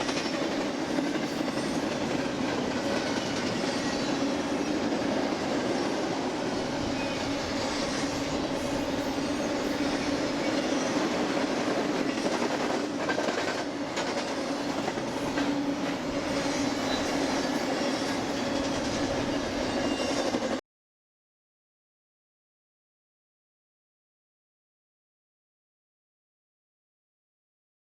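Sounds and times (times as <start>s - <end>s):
train wheels on rail: 0.0s - 20.6s.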